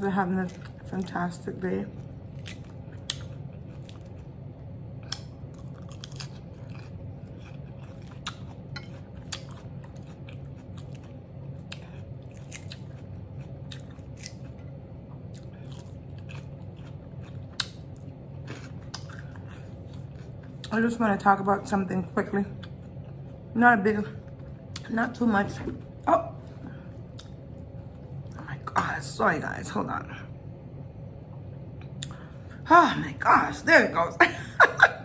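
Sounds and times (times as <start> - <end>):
crunchy chewing of salad: 0.2 - 21.0, 22.0 - 24.9.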